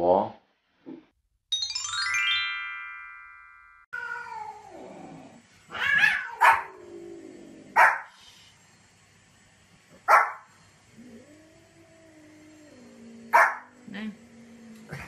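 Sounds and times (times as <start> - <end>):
rising chime glissando: 1.5 - 3.9
dog yowling and whining: 5.7 - 6.8
dog barking: 6.0 - 6.7, 7.8 - 8.1, 10.1 - 10.5, 13.3 - 13.7.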